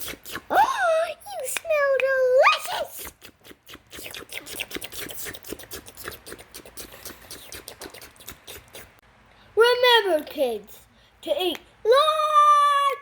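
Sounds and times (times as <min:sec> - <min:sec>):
wet mouth clicks and smacks: 0:00.0 - 0:00.5, 0:03.0 - 0:09.0.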